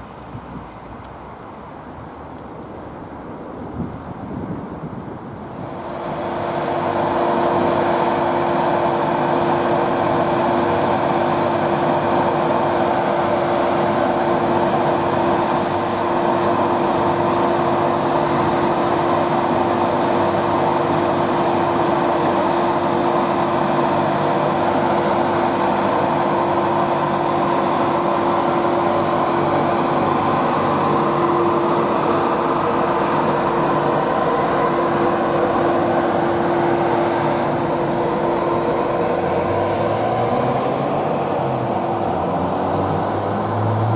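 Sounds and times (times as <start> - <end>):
train running close by: 0.0 - 43.9
brief high hiss: 15.5 - 16.1.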